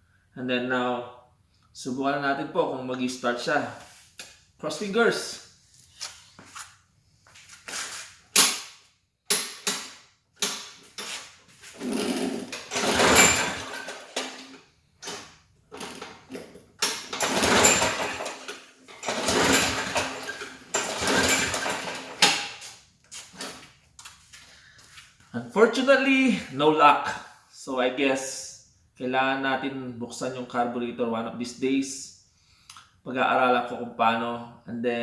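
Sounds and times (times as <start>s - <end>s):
lawn mower engine cranking: 10.4s - 22.7s.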